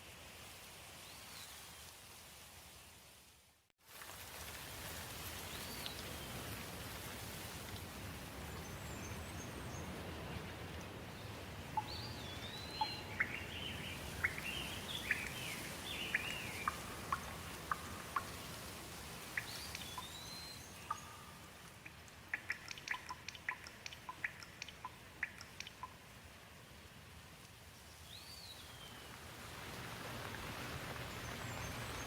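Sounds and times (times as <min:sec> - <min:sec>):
steady rain falling: 0:00.0 - 0:32.0
sharp water drips: 0:04.0 - 0:28.1
songbirds whistling and chirping: 0:11.8 - 0:18.3, 0:19.4 - 0:21.3.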